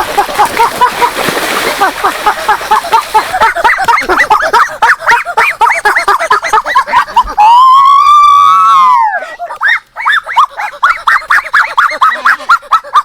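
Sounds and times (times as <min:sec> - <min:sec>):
animals squealing: 0:06.3 - 0:13.0.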